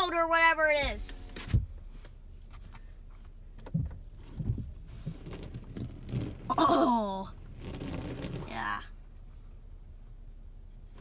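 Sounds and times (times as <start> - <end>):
hose water spraying on car: 4.1 - 8.7.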